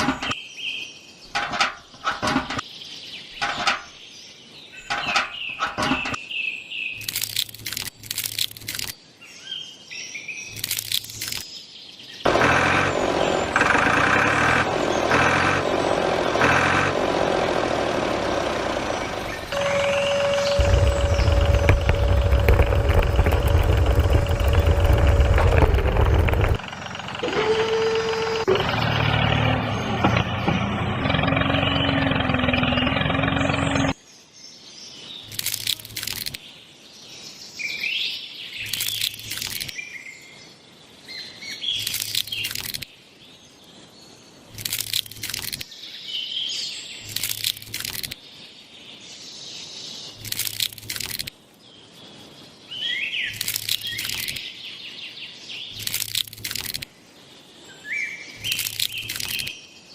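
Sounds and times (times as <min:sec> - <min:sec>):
birds chirping: 0:00.0 - 0:26.9, 0:28.6 - 0:59.9
motor running: 0:12.3 - 0:33.9.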